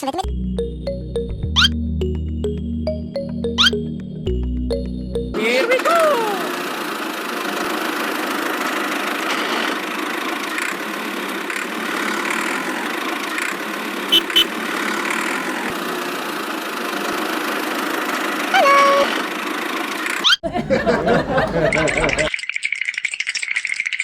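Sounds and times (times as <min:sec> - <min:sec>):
small motor and gearing running: 0:05.6 - 0:20.4.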